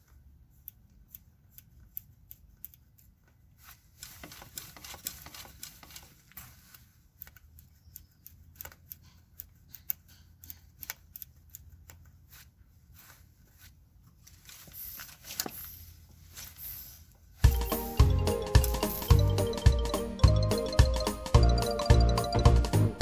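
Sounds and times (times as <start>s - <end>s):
small clicks and taps: 0.0s - 3.4s, 4.0s - 12.2s.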